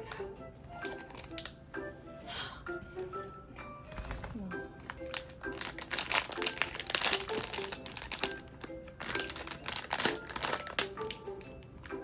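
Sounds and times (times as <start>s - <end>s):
plastic packaging crinkling: 0.8s - 1.6s, 3.9s - 12.0s.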